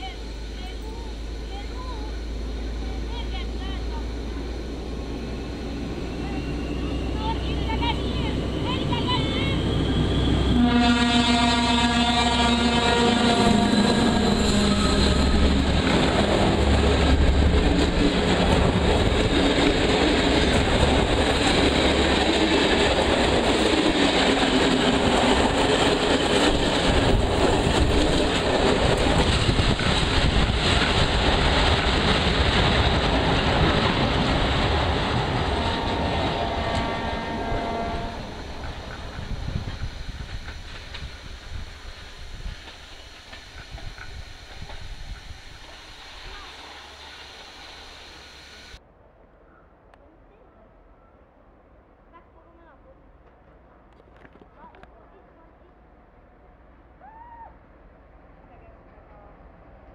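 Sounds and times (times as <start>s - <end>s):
train rumbling past: 0.0s - 49.2s
train horn: 10.4s - 15.7s, 35.4s - 38.4s.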